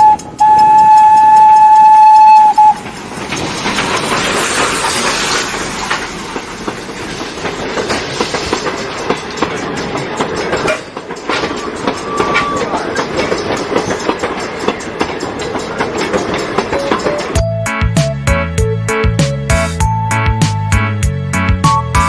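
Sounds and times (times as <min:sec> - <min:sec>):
train whistle: 0:00.0 - 0:02.9, 0:11.6 - 0:12.7
train clattering on rails: 0:00.0 - 0:22.0.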